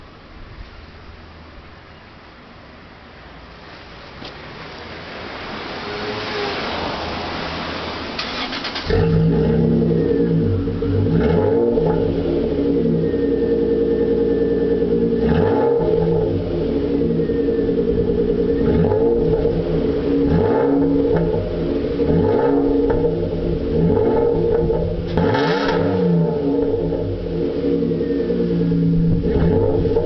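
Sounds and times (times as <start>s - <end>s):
car engine starting and idling: 3.6s - 30.0s
engine revs blipped: 5.1s - 30.0s.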